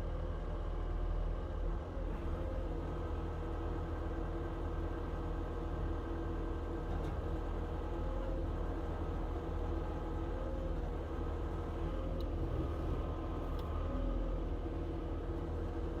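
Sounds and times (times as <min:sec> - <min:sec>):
diesel engine running steadily: 0:00.0 - 0:16.0.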